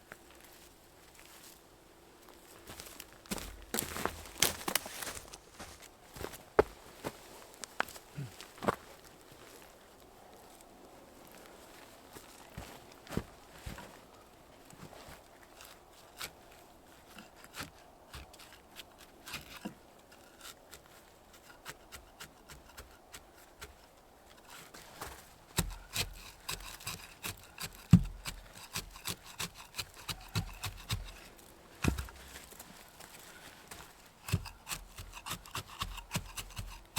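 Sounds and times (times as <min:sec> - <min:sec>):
clicks scrapes and rustles: 0:14.7 - 0:36.9.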